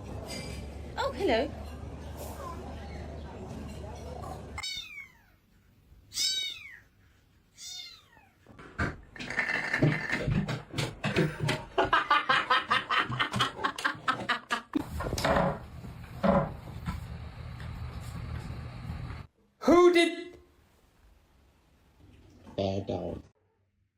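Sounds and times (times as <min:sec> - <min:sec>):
cat meowing: 0:04.6 - 0:05.4, 0:06.1 - 0:06.9, 0:07.5 - 0:08.4.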